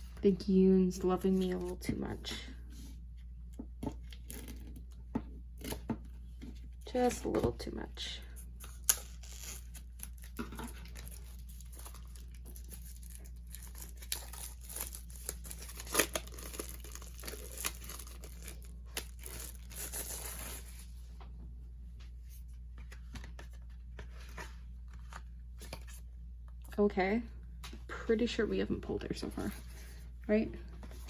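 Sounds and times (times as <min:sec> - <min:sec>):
packaging torn and crinkled: 0:08.8 - 0:20.8.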